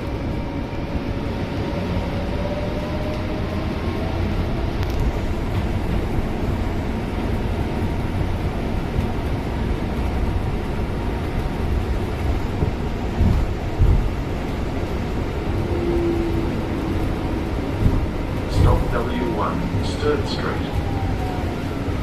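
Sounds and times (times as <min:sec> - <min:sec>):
bus engine and road noise: 0:00.0 - 0:22.0
low thumps: 0:12.5 - 0:14.4, 0:17.6 - 0:18.9.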